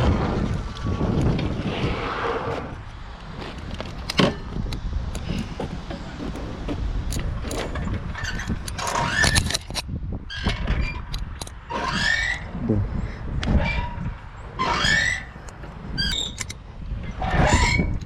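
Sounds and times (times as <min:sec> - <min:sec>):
wind and ground rumble: 0:00.0 - 0:18.0
bike knocks and rattles: 0:03.2 - 0:11.9.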